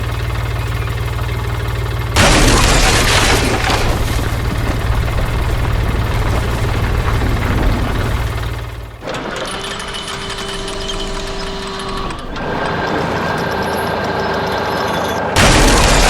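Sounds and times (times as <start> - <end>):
diesel engine running: 0.0 - 16.0
loud crash: 2.2 - 8.8, 15.4 - 16.0.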